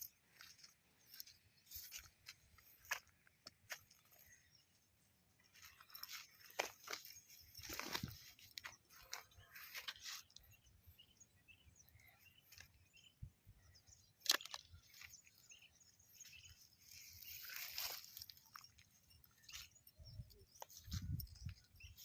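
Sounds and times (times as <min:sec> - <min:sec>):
rustling of dry vegetation: 0:00.0 - 0:11.2, 0:12.0 - 0:22.0.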